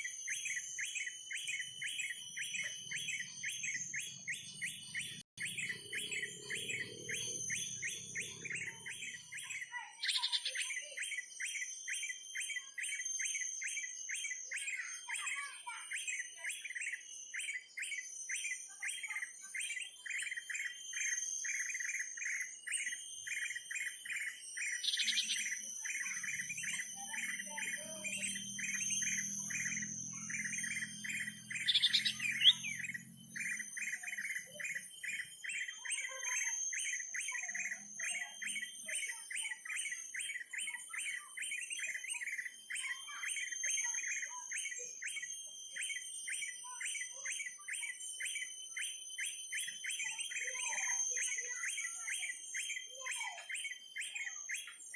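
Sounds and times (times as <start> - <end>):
rapid bird chirps: 0.0 - 54.9.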